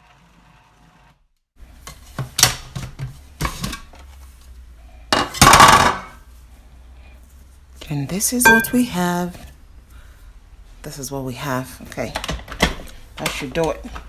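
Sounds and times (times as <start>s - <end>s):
dishes and utensils clinking: 8.4s - 9.1s.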